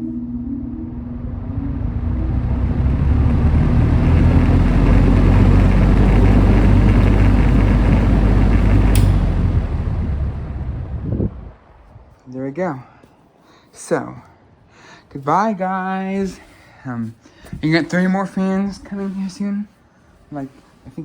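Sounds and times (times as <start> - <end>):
box fan running: 0.0 - 11.8
sharp click: 8.7 - 9.7.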